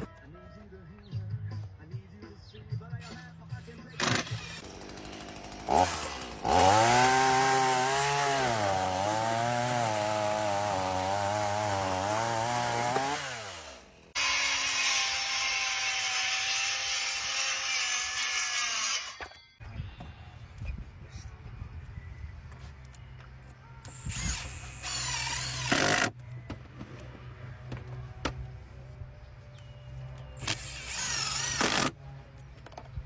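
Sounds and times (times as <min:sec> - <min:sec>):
power tool motor running: 0:04.0 - 0:19.2, 0:23.9 - 0:26.1, 0:30.4 - 0:31.9.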